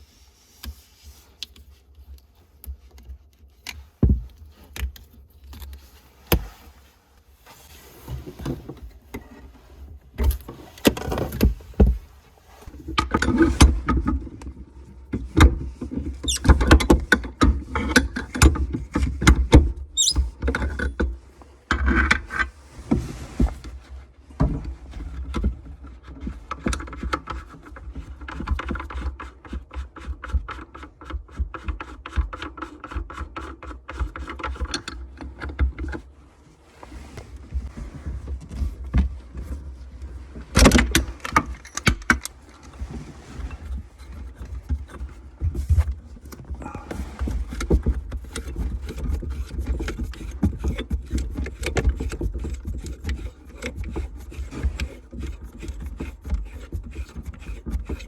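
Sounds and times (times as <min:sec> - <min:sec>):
metallic clicks and scrapes: 0:15.9 - 0:21.1, 0:36.8 - 0:58.0.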